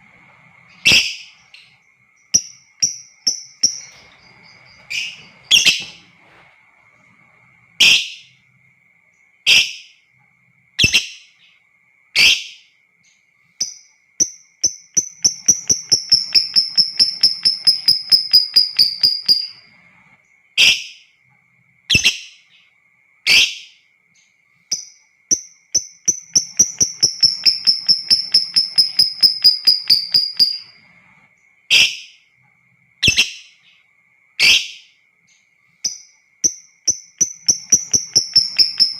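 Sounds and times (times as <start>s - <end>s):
faint steady high tone: 0.0s - 21.8s, 22.4s - 38.9s
lovebird chirping and trilling: 0.5s - 6.2s, 7.8s - 8.3s, 10.8s - 11.4s, 13.6s - 19.7s, 24.7s - 30.9s, 33.0s - 33.7s, 34.4s - 34.9s, 35.8s - 38.9s.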